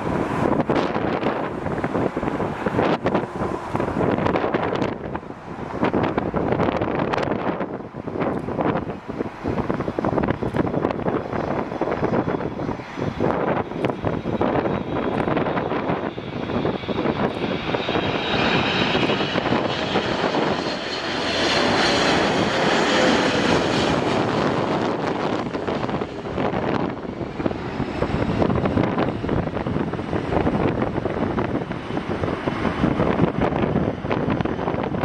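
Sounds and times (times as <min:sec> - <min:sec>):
jet engines passing: 0:00.0 - 0:35.0
wind buffeting microphone: 0:00.0 - 0:35.0.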